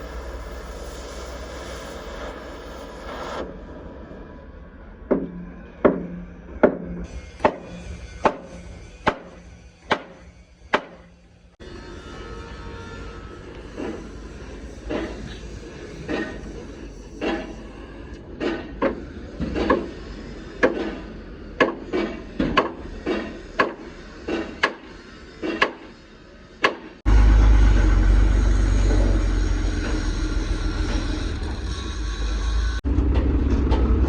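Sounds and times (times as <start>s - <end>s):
hammer blows on metal bodywork: 5.1s - 11.5s
loud low rumble: 27.1s - 34.0s.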